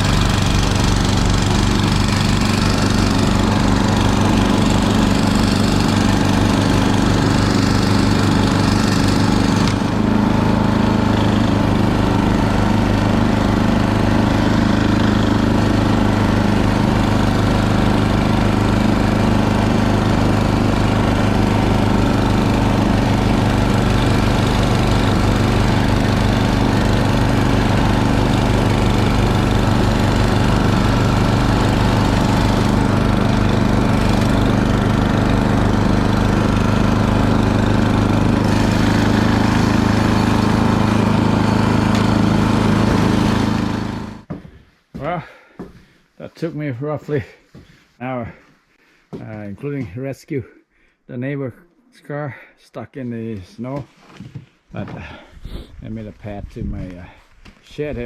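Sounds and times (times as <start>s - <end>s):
snow blower engine running: 0.0s - 44.3s.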